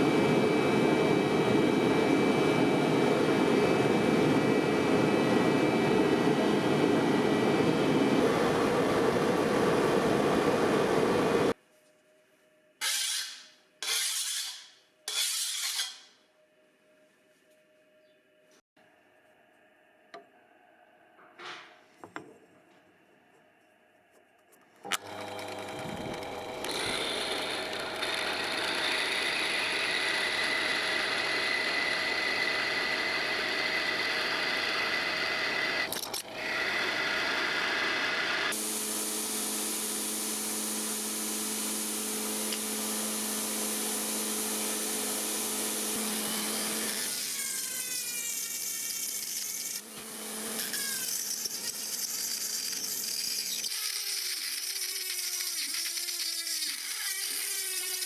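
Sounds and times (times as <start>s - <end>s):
power tools running: 0.0s - 11.6s, 24.8s - 58.0s.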